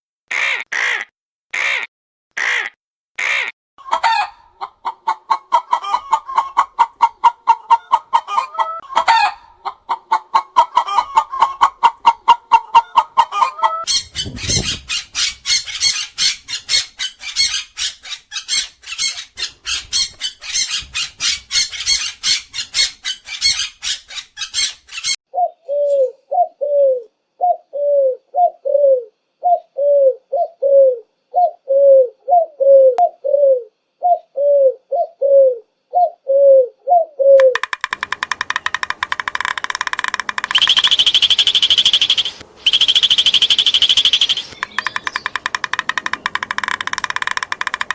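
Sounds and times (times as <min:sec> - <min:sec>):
low bird cooing: 0:25.3 - 0:37.6, 0:40.2 - 0:47.7
fast buzzing bird trill: 0:38.6 - 0:47.8
high bird chirping: 0:40.0 - 0:47.4.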